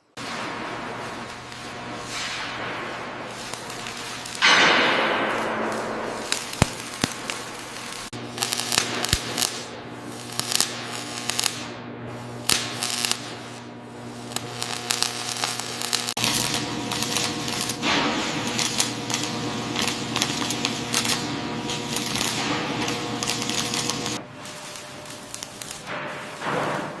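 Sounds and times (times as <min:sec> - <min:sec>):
machine hum: 0:00.3 - 0:27.0.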